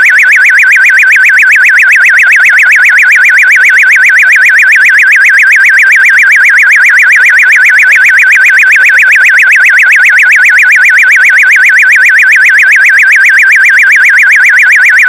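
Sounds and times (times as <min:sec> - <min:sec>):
electronic warbling alarm tone: 0:00.0 - 0:00.4.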